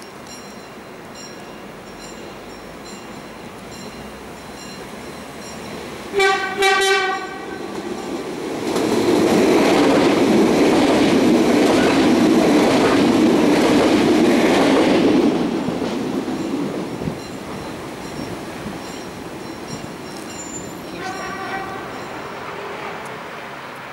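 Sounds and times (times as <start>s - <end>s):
train wheel and rail noise: 0.0s - 23.9s
train horn blasts: 6.1s - 7.8s, 20.8s - 23.4s.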